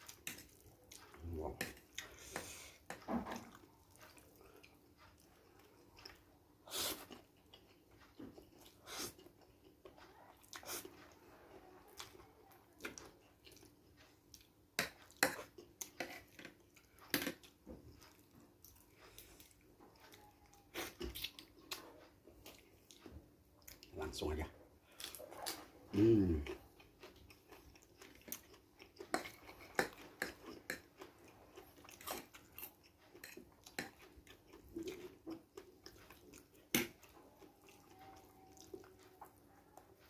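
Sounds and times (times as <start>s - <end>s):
wet chewing and mouth smacks: 26.4s - 39.4s.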